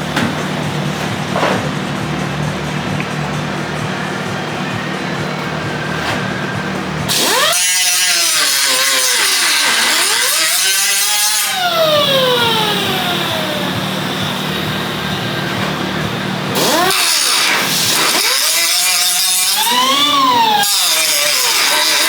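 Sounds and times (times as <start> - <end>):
power tool motor revving: 5.7 - 22.0.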